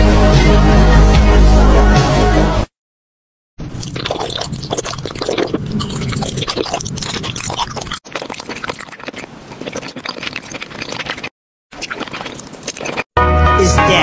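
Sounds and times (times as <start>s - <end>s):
candy crunching: 3.8s - 13.1s.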